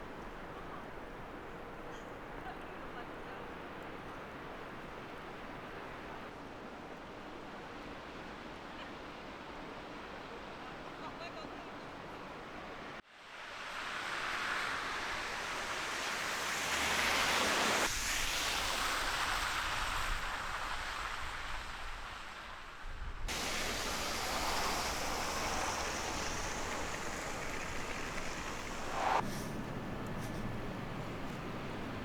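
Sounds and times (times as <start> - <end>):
storm wind blowing: 23.0 - 32.0.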